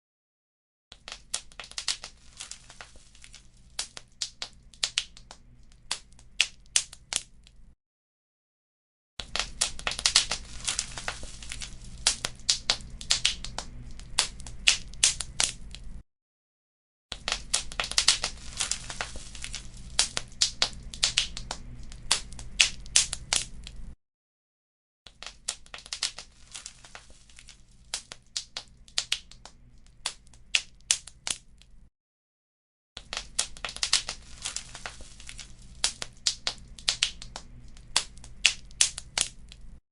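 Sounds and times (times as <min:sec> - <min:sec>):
wood fire crackling and popping: 0:01.0 - 0:07.7, 0:09.2 - 0:16.0, 0:17.1 - 0:24.0, 0:25.1 - 0:31.8, 0:33.0 - 0:39.8
steady low hum: 0:09.6 - 0:16.0, 0:17.5 - 0:24.0
low steady rumble: 0:10.3 - 0:16.0, 0:17.4 - 0:24.0.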